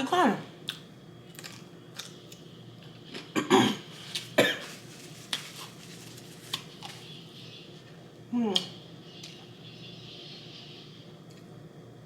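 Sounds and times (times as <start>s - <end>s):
person coughing: 3.4s - 4.7s.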